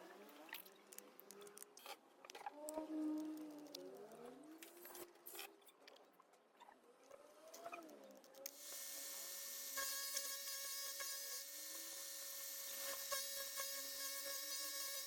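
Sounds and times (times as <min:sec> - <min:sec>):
grinder whine: 0:08.5 - 0:15.0.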